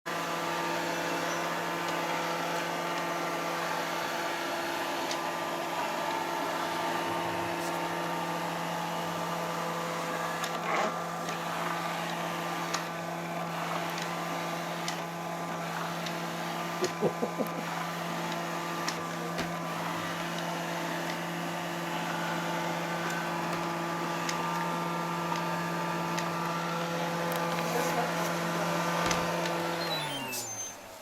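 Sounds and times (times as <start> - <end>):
vacuum cleaner motor humming: 0.1 - 31.0.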